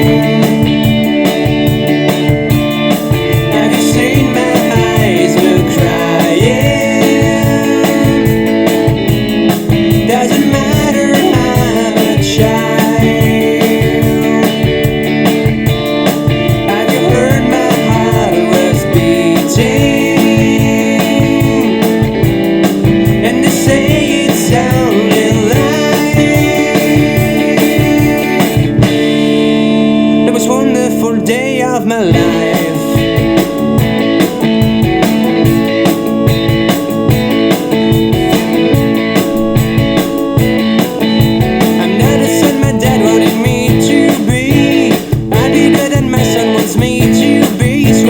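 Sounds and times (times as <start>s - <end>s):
held organ chords: 0.0s - 48.0s
rock band playing: 0.0s - 48.0s.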